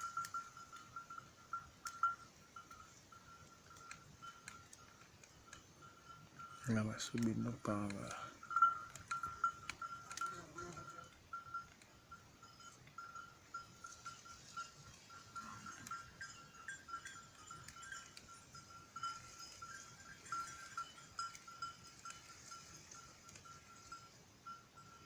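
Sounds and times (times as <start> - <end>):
light ticks: 1.8 - 5.7, 6.3 - 11.9
faint animal chirping: 9.2 - 11.6.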